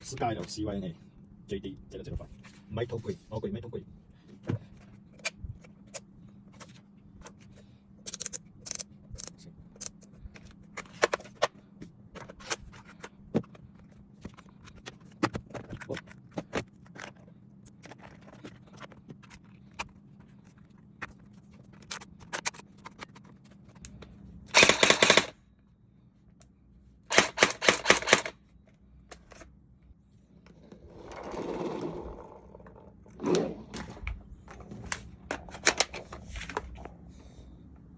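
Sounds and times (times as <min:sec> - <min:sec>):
gel blaster full-auto burst: 0:24.5 - 0:25.3.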